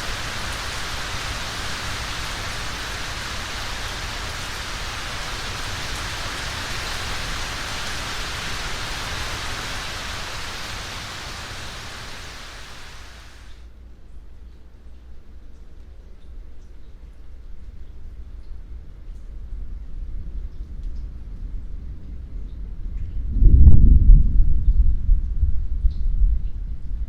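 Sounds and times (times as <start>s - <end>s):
steady rain falling: 0.0s - 22.3s.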